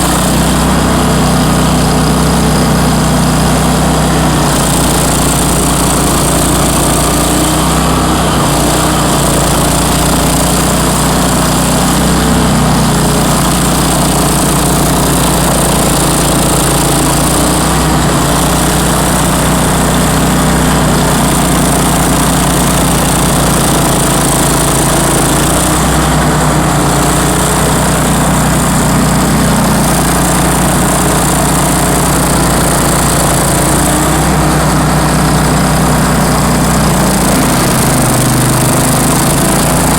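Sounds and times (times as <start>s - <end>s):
stump grinder engine running: 0.0s - 39.9s.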